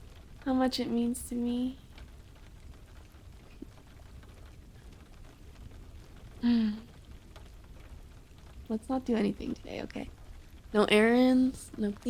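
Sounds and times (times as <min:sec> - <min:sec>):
steady rain pattering: 0:00.0 - 0:12.0
woman humming: 0:06.4 - 0:06.9.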